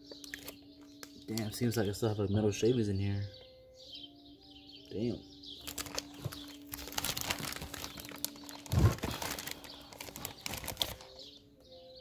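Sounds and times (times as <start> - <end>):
rustling and crinkling handling: 5.6 - 11.4.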